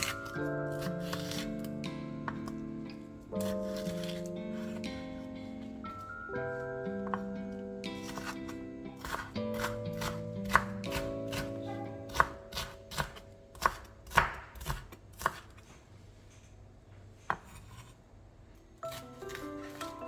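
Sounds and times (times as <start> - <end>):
soft background music: 0.0 - 14.3, 18.8 - 20.0
knife chopping on cutting board: 0.8 - 1.5, 3.4 - 4.9, 8.0 - 8.4, 9.0 - 15.6, 18.9 - 19.9.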